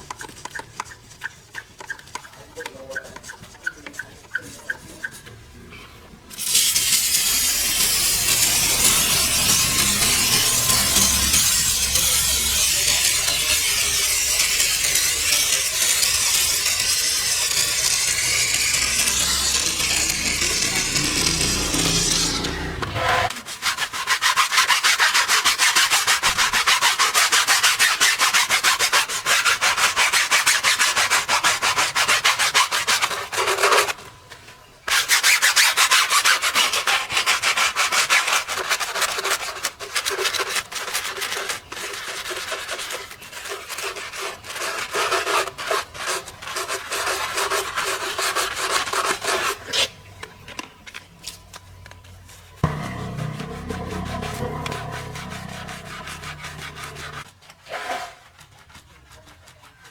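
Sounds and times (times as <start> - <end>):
stiff brush scrubbing: 0.0 - 5.4, 6.3 - 33.8, 35.1 - 49.6, 52.6 - 59.9
low hum: 6.8 - 23.3, 52.6 - 57.3.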